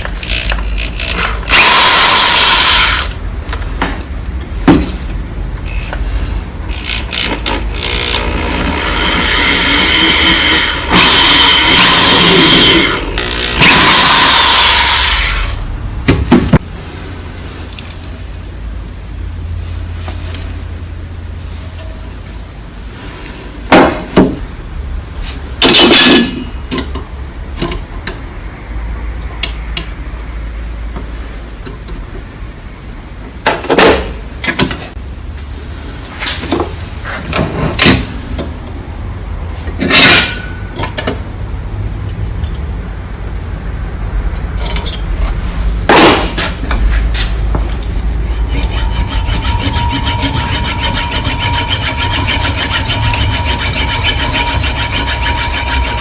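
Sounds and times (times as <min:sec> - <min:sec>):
fast rasping with thin whine: 0:48.2 - 0:56.0
scraping on frying pan: 0:48.2 - 0:56.0.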